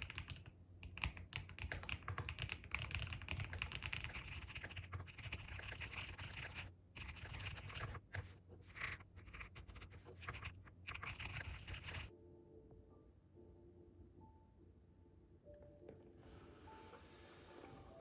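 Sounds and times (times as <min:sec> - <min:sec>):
keyboard typing: 0:00.0 - 0:12.1.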